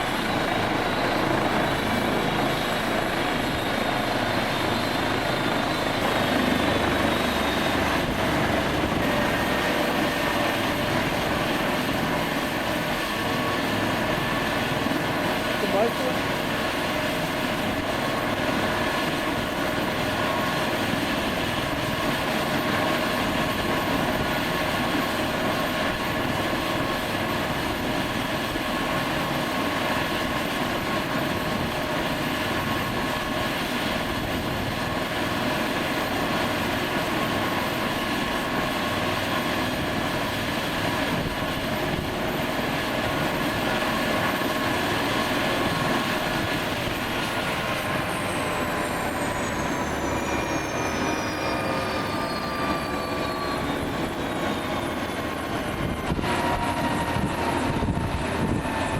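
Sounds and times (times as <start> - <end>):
helicopter rotor rushing: 0.0 - 58.9
helicopter turbine whine: 0.0 - 58.9.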